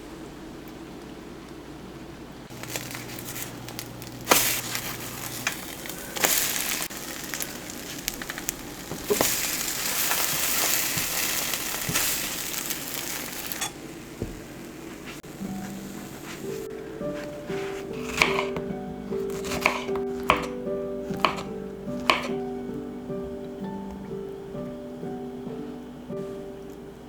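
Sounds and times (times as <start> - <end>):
food sizzling in a frying pan: 2.5 - 18.5.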